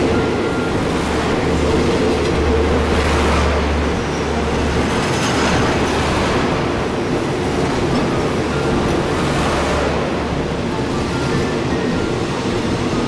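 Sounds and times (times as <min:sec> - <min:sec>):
train wheels on rail: 0:00.0 - 0:13.0.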